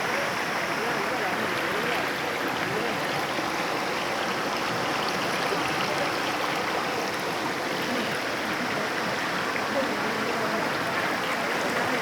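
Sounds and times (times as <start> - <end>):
stream water flowing: 0.0 - 12.0.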